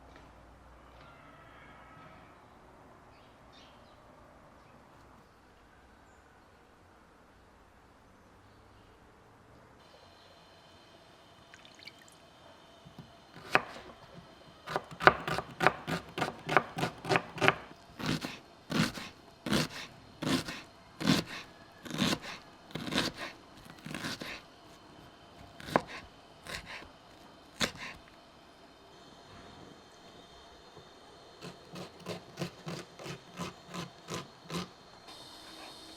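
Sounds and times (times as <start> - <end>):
knife chopping on cutting board: 13.4 - 14.0, 14.7 - 24.4, 25.6 - 26.8.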